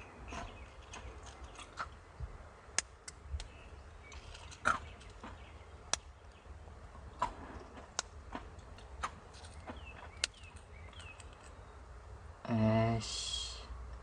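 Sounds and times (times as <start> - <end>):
low steady rumble: 0.0 - 14.0
sharp taps and clicks: 4.6 - 6.1.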